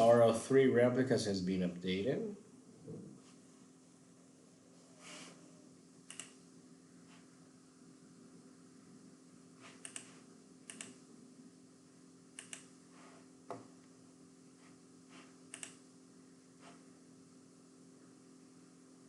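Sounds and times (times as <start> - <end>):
faint low hum: 0.0 - 19.0
computer keyboard keystrokes: 10.7 - 11.0, 12.4 - 12.7.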